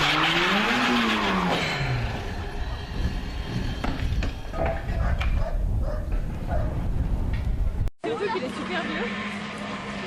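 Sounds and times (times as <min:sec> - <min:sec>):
rally car engine receding: 0:00.0 - 0:04.5, 0:08.5 - 0:10.0.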